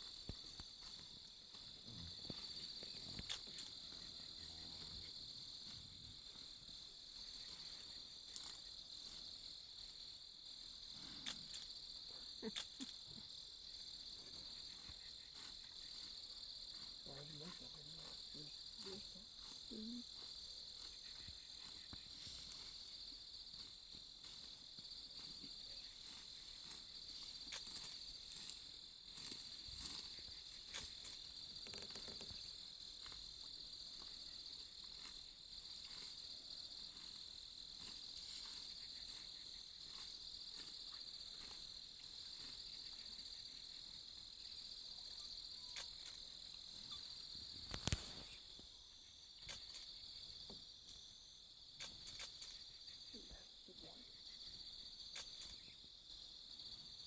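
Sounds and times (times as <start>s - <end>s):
insects chirping: 0.0s - 57.0s
faint ticks: 47.6s - 48.4s.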